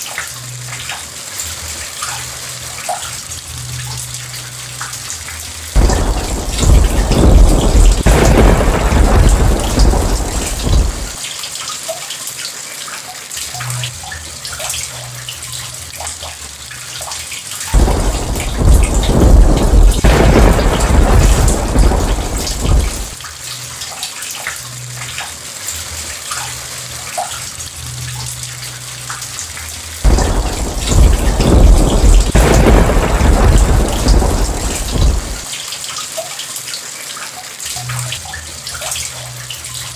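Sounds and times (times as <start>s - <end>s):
steady rain: 0.0s - 39.9s
thunder rolling: 5.8s - 11.2s, 17.8s - 23.2s, 30.0s - 35.5s.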